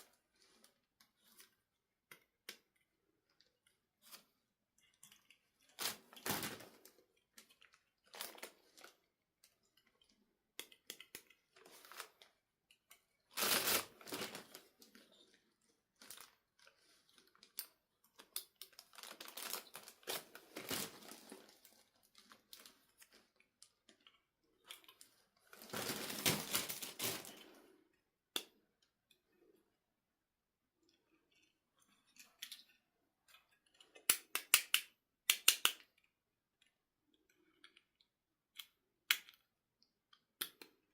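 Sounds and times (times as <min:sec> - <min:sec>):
cardboard and plastic tearing: 0:13.4 - 0:14.6, 0:18.7 - 0:22.7, 0:25.6 - 0:27.4.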